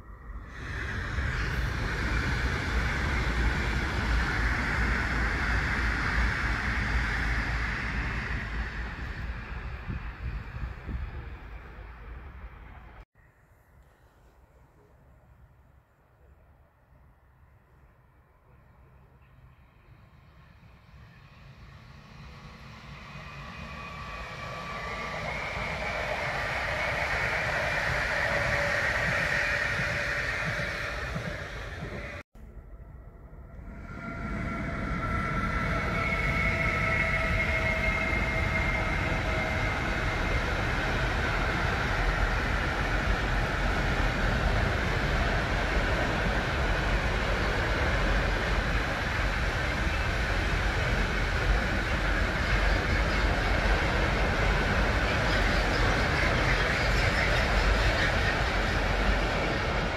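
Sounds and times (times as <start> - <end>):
wheels rushing on rails: 0.0 - 13.0, 18.5 - 32.6, 33.3 - 59.9
high-speed train passing: 0.0 - 13.3, 16.4 - 59.9
train motor whine: 22.3 - 32.2.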